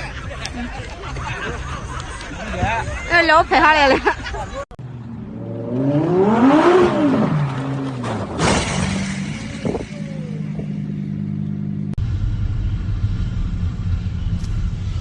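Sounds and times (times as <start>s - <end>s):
low road rumble: 0.0s - 15.0s
car engine: 4.3s - 15.0s.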